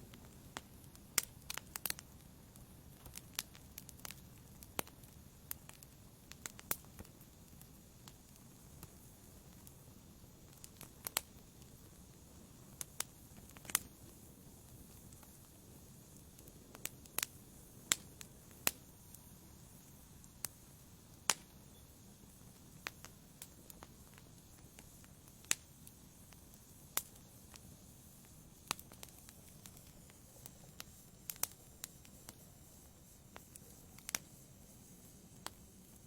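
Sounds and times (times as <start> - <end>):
faint low hiss: 0.0 - 36.0
wood fire crackling and popping: 0.0 - 36.0.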